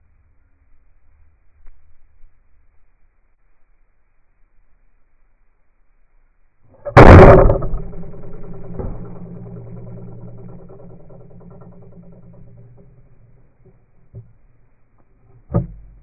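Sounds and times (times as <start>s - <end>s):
low hum: 0.0s - 16.0s
sharp crack of bow shot: 6.9s - 12.1s.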